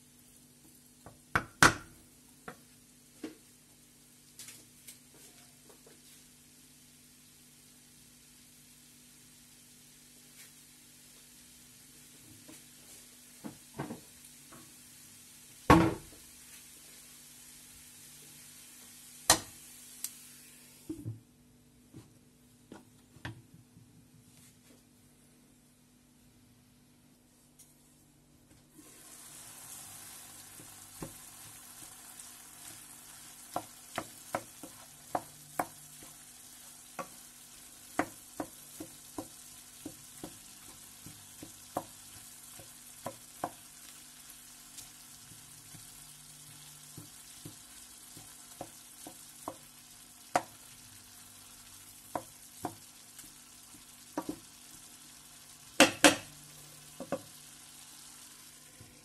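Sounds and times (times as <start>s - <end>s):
meat sizzling in a frying pan: 0.0s - 20.9s, 28.7s - 59.0s
wooden spoon knocking on pan: 1.0s - 2.6s, 30.5s - 32.0s, 33.5s - 43.7s, 45.3s - 50.7s, 52.0s - 54.9s, 55.8s - 56.3s, 56.9s - 57.4s.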